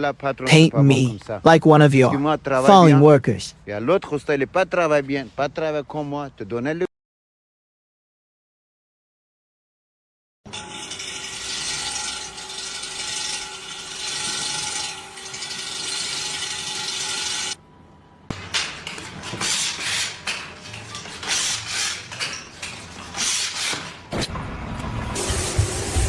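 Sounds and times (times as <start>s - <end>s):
machine whirring: 10.5s - 17.6s
scraping rasping strokes: 19.0s - 24.0s.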